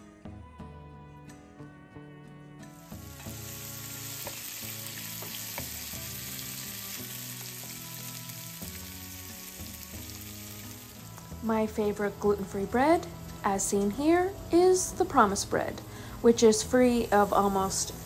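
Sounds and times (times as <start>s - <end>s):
vegetables sizzling in oil: 2.8s - 11.4s, 12.1s - 18.0s.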